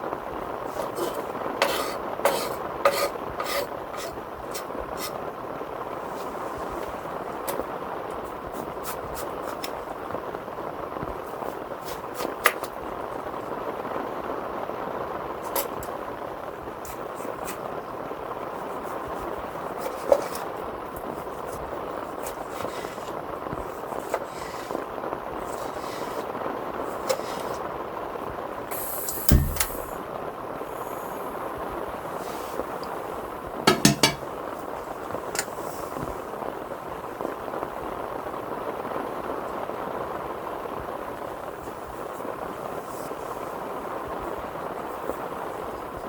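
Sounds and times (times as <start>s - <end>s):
heavy rain on a tent: 0.0s - 33.7s, 34.3s - 46.0s
heavy thump: 29.1s - 30.0s, 33.7s - 34.3s
sharp knocks: 29.3s - 30.0s, 33.7s - 34.3s.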